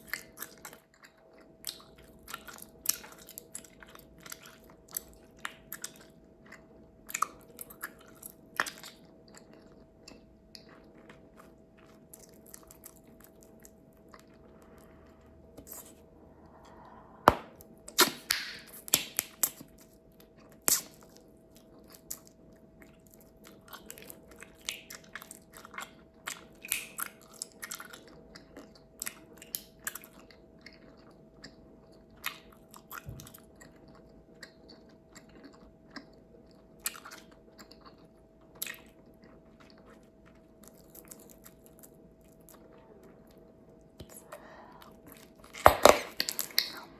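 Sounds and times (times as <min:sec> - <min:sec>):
bubblegum chewing snaps: 0:15.6 - 0:19.7, 0:45.5 - 0:46.9
sharp gum pops: 0:17.3 - 0:19.3.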